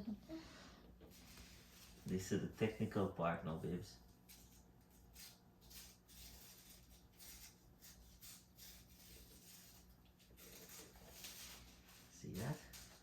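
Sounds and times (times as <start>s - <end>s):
rustling of thread and paper: 1.1s - 2.4s, 4.1s - 13.0s.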